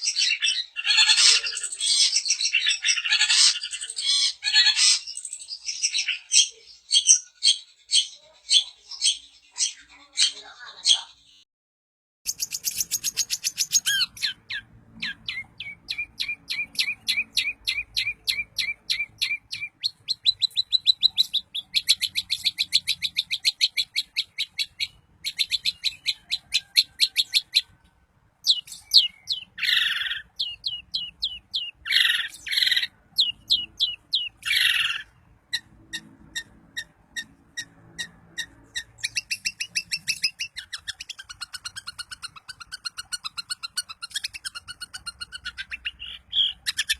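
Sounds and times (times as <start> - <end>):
harsh rasping bird calls: 0.0 - 11.4, 12.3 - 46.9
bird singing rapid trills: 12.3 - 27.8, 28.4 - 46.9.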